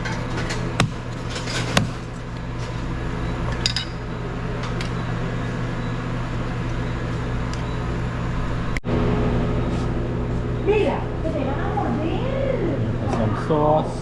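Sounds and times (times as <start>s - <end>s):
utensils clinking against dishes: 0.0s - 2.8s, 3.4s - 5.1s
steady low hum: 0.0s - 14.0s.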